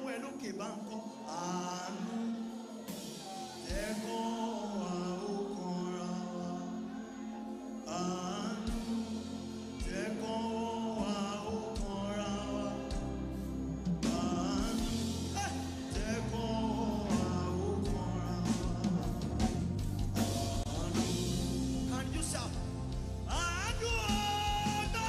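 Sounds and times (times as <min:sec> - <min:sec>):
gospel singing over a band: 0:00.0 - 0:25.0
bass guitar: 0:11.0 - 0:25.0.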